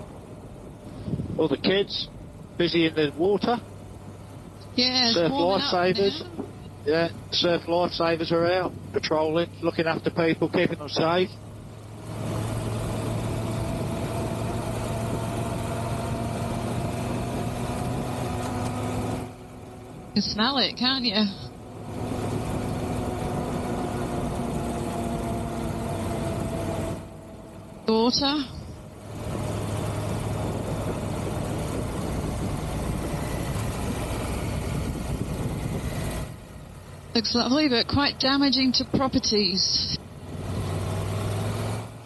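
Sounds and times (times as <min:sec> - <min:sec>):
wind and road noise: 0:00.0 - 0:42.0
wind rush on microphone: 0:00.9 - 0:01.6, 0:28.6 - 0:36.4
motorcycle engine running: 0:04.7 - 0:40.3.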